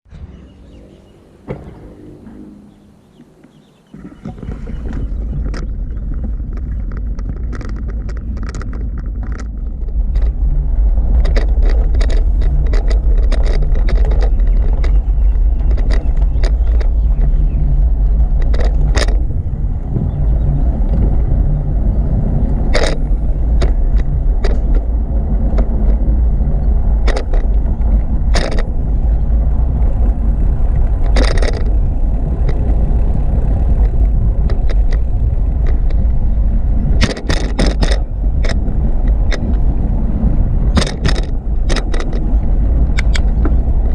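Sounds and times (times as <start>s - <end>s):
wind rumbling on microphone: 0.0s - 43.9s
bicycle rattling and clicking: 3.6s - 43.9s.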